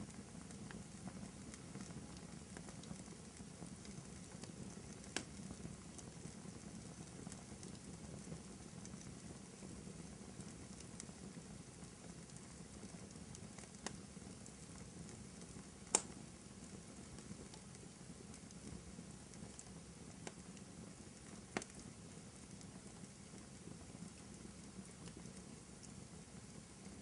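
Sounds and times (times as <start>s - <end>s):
fire crackling: 0.0s - 27.0s
sharp fire pops: 5.0s - 5.4s, 15.8s - 16.2s, 21.5s - 21.8s.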